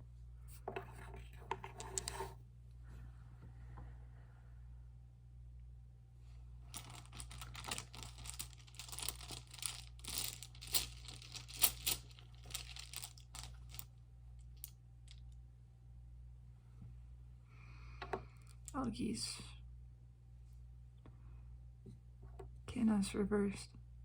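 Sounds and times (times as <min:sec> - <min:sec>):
crinkling rustling crackles: 0:06.7 - 0:13.9.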